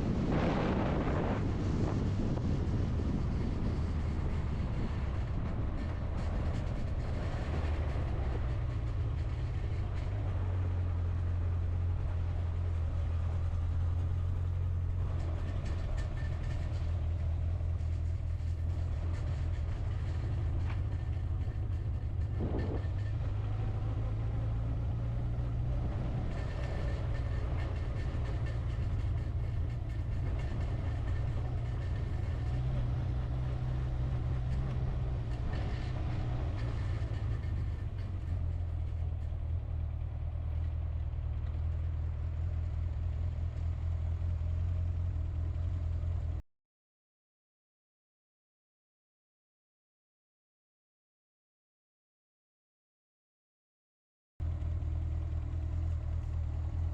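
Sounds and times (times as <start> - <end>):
vehicle engine and tyres droning: 0.0 - 46.4, 54.4 - 56.9.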